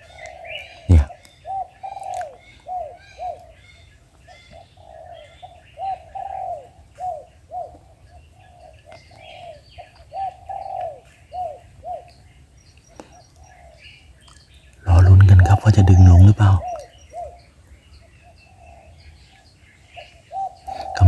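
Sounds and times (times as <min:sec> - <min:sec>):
small birds chirping faintly: 0:00.0 - 0:21.0
doves cooing: 0:04.5 - 0:12.1, 0:14.9 - 0:17.4, 0:20.3 - 0:21.0.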